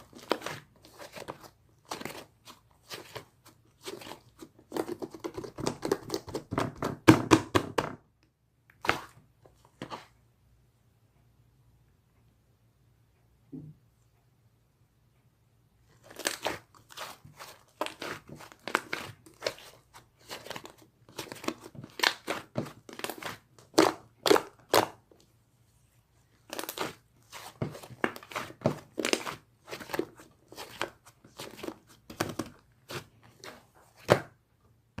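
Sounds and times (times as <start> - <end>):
slime squelching by hand: 15.9 - 25.0, 26.3 - 34.2.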